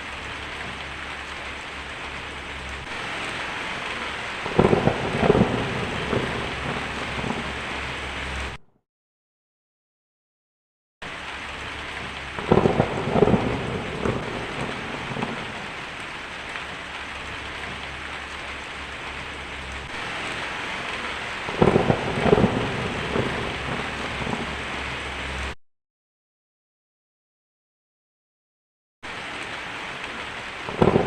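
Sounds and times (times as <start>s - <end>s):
steady rain: 0.0s - 8.6s, 11.0s - 25.6s, 29.0s - 31.0s
thunder rolls: 2.8s - 8.6s, 11.7s - 25.6s, 30.6s - 31.0s.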